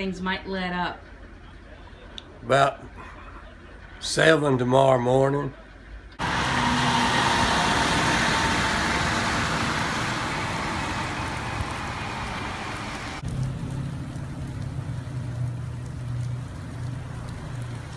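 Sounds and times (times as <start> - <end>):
vehicle tyre noise hiss: 6.2 - 17.9.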